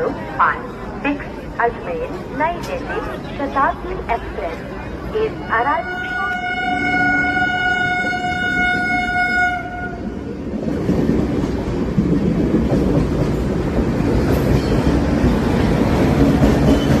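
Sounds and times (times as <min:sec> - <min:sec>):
train rumbling along track: 0:00.0 - 0:17.0
train horn: 0:05.8 - 0:10.1.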